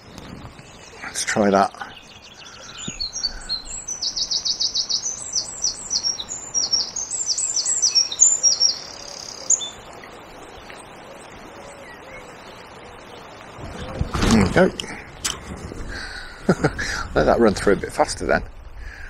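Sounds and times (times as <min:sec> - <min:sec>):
songbird singing fast trills: 0:00.0 - 0:13.4
river water rushing: 0:02.2 - 0:16.4.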